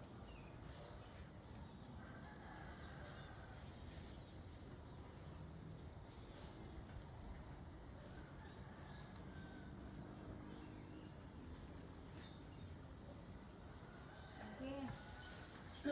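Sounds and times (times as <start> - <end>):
high-pitched insect chorus: 12.5 - 15.9.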